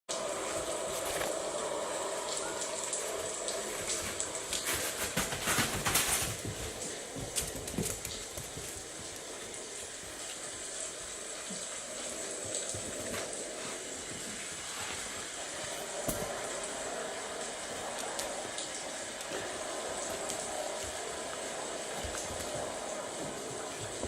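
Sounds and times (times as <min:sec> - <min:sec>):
rain hissing: 0:00.1 - 0:24.0.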